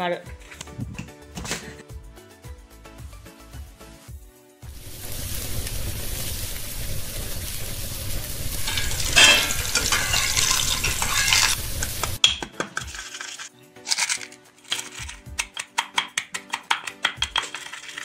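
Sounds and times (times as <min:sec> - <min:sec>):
food sizzling in a hot pan: 0:04.6 - 0:12.2.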